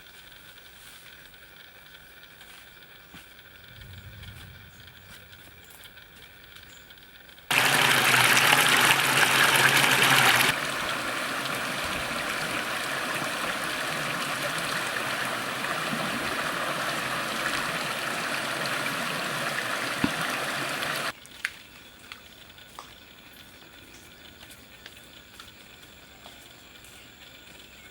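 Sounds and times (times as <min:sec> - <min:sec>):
rushing water: 0:07.5 - 0:21.1.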